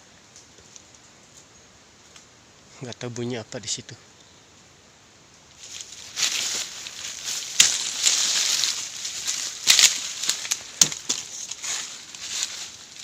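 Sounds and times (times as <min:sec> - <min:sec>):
sharp crackles of undergrowth: 0:00.0 - 0:13.0
footsteps rustling through dry leaves: 0:05.5 - 0:13.0.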